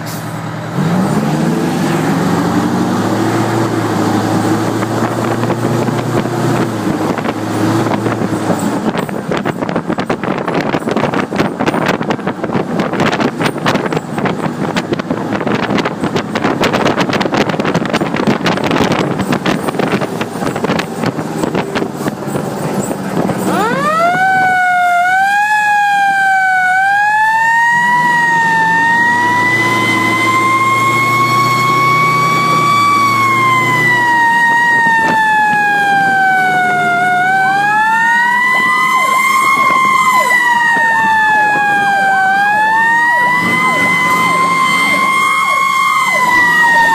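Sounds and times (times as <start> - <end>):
loud rushing rumble: 0.0 - 24.7
fire engine siren wailing: 0.0 - 46.9.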